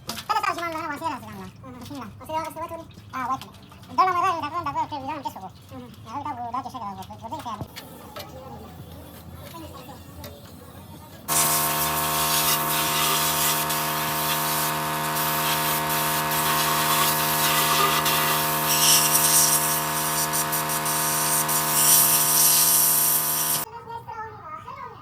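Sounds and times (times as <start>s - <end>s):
electric power tool running: 11.3s - 23.7s.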